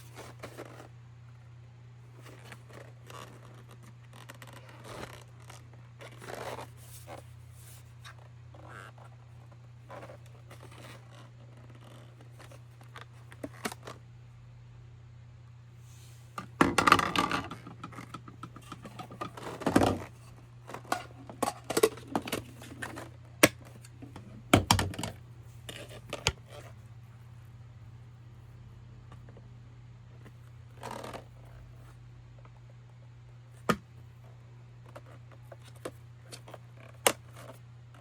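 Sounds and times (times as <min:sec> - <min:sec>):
steady low hum: 0:00.0 - 0:38.0
clicks and knocks of handling: 0:16.4 - 0:26.7.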